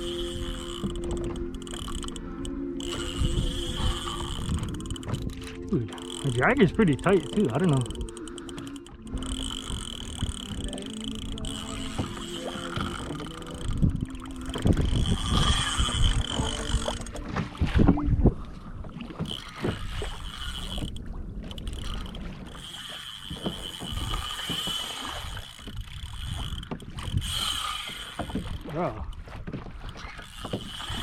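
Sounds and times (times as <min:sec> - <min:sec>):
steady high-pitched whine: 0:00.0 - 0:17.4
water sloshing against hull: 0:00.0 - 0:31.0.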